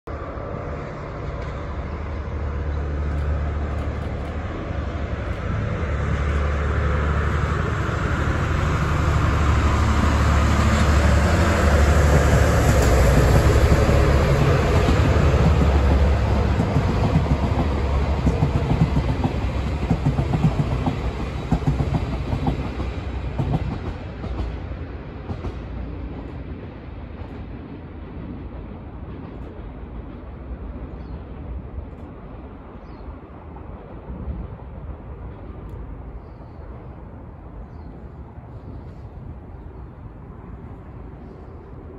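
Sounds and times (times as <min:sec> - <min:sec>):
diesel locomotive engine drone: 0:00.0 - 0:41.9
train wheels clattering over rail joints: 0:10.5 - 0:26.4.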